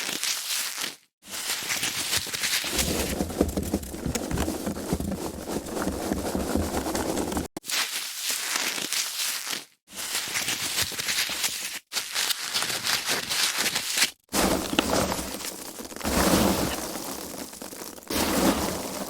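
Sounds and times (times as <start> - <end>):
foam packaging crackling: 1.6 - 7.6, 10.4 - 19.0.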